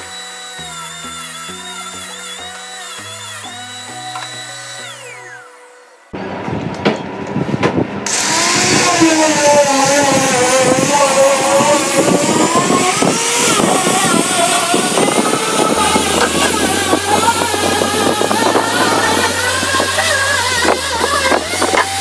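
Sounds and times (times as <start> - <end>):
power tool cutting wood: 0.0 - 6.2, 8.0 - 22.0.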